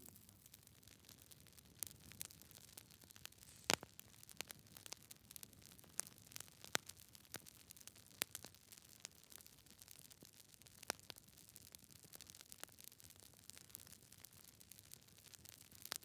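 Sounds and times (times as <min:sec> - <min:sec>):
wood fire crackling: 0:00.0 - 0:16.0
faint hiss: 0:03.3 - 0:04.0.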